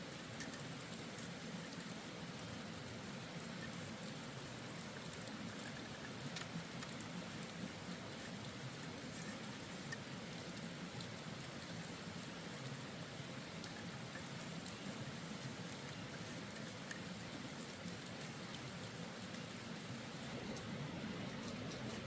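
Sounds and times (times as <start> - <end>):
water pattering on a surface: 0.0 - 22.0
small water drops ticking: 5.0 - 19.5.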